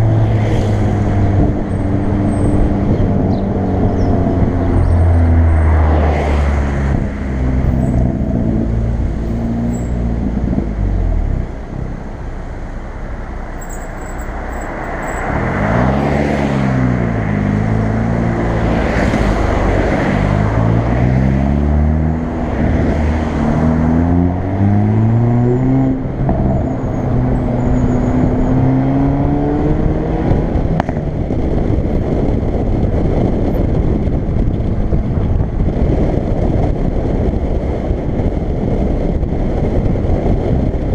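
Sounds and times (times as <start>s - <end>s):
road noise: 0.0s - 40.9s
car engine accelerating: 13.5s - 37.8s.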